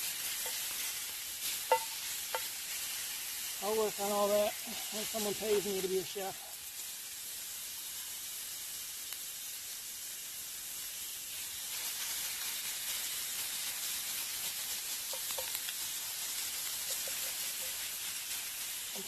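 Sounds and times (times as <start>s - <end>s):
campfire crackle: 0.0s - 19.0s
food sizzling in a frying pan: 0.0s - 19.0s.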